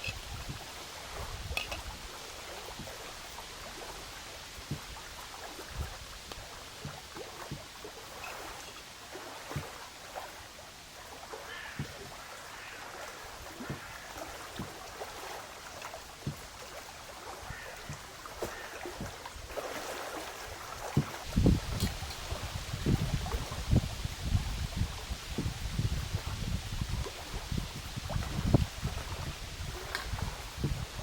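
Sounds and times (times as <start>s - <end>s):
water splashing and lapping: 0.0s - 31.0s.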